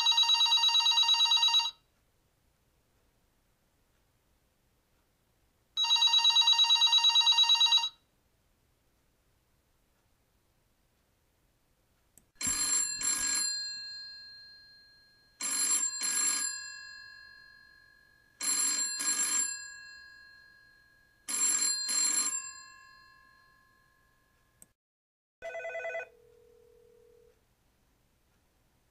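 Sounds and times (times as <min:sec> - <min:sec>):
telephone bell ringing: 0:00.0 - 0:01.8, 0:05.8 - 0:08.0, 0:12.4 - 0:24.4, 0:25.4 - 0:27.4.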